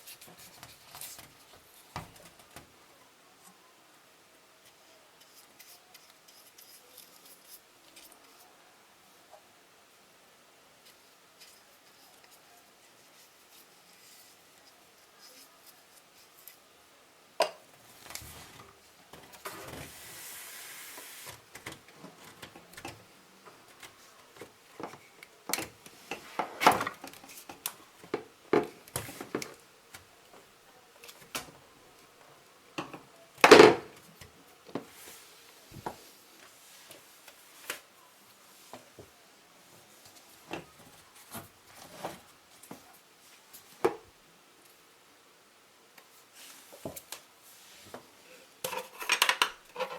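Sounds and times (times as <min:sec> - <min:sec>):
short steady hiss: 0:19.8 - 0:21.4.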